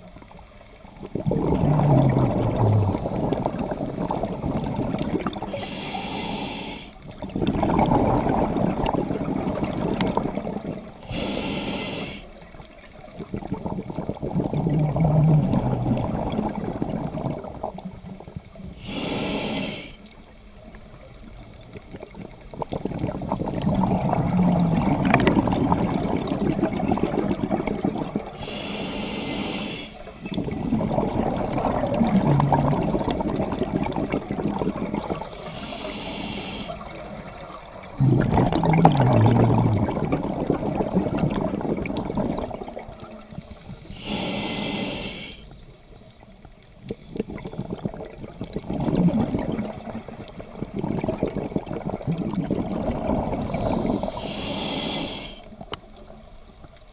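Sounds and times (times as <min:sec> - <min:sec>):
exhaust bubbles rushing: 0:01.0 - 0:05.5, 0:07.3 - 0:10.8, 0:13.3 - 0:17.7, 0:22.7 - 0:28.3, 0:30.8 - 0:35.0, 0:37.9 - 0:43.0, 0:47.8 - 0:53.5
diver inhaling through regulator: 0:01.4 - 0:04.8, 0:05.4 - 0:07.0, 0:11.0 - 0:12.4, 0:18.8 - 0:20.1, 0:28.4 - 0:30.9, 0:34.8 - 0:37.1, 0:43.3 - 0:45.5, 0:53.2 - 0:55.7.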